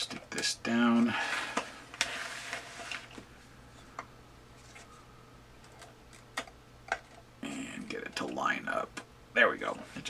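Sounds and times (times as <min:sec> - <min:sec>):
rustling scrape: 0:01.0 - 0:03.3.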